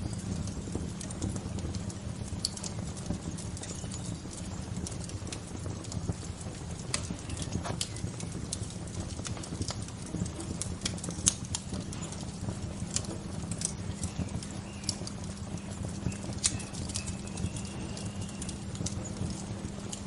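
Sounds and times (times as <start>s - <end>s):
bonfire crackling: 0.0s - 20.0s.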